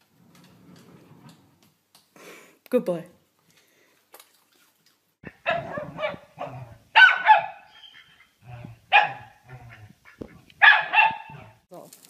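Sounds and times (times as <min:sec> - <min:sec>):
dog barking: 0:05.3 - 0:07.9, 0:08.5 - 0:09.8, 0:10.6 - 0:11.6.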